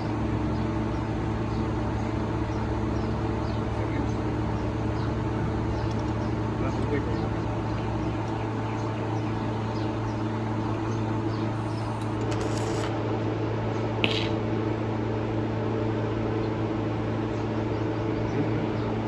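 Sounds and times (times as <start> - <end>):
short sharp click: 14.0 - 14.4.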